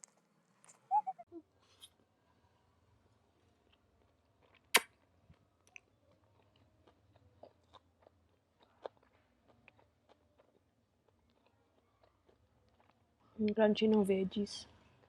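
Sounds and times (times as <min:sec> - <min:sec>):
person chewing crunchy food: 0:03.4 - 0:13.3.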